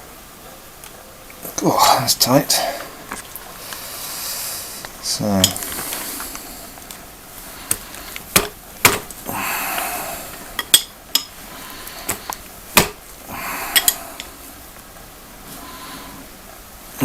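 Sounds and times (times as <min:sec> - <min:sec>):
metal spanners clinking: 0:13.7 - 0:14.3.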